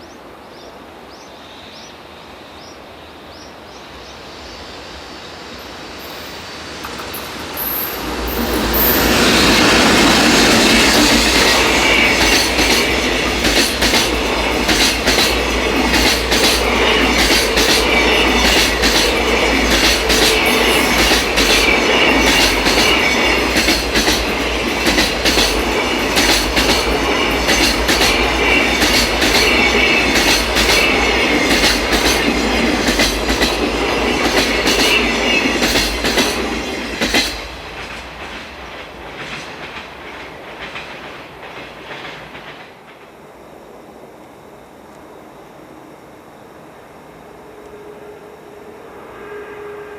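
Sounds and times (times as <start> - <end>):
locomotive rushing past: 3.9 - 43.1.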